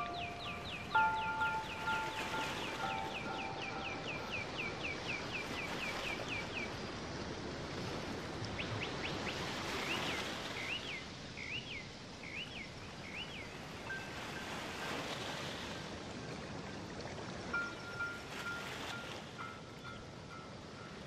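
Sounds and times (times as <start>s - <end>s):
bird chirping: 0.0s - 6.7s.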